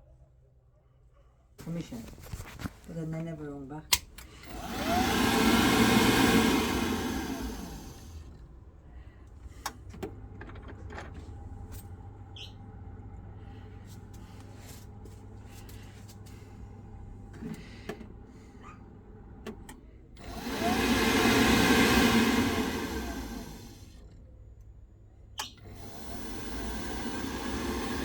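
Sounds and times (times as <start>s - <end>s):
whooshing blower: 4.4s - 8.2s, 20.2s - 23.9s, 25.7s - 28.0s.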